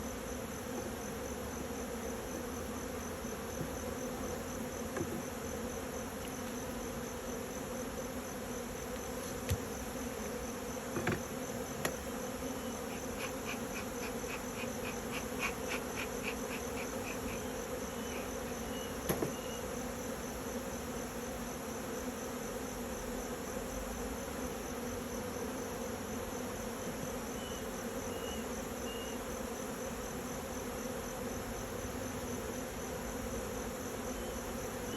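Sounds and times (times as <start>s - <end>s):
bees buzzing: 0.0s - 34.9s
insect high pulsing: 1.0s - 20.8s.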